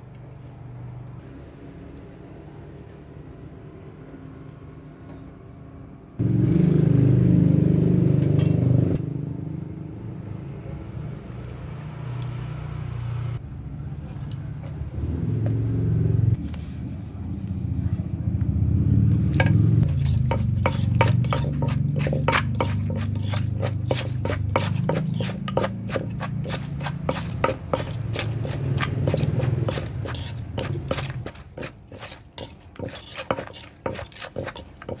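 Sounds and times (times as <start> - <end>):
pestle pounding in mortar: 19.3 - 35.0.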